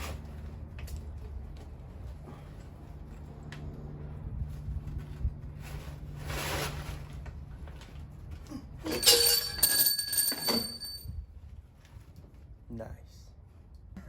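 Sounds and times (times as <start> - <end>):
loud ringing metal clanks: 8.8 - 11.0
metal engine parts clanking: 8.8 - 11.0.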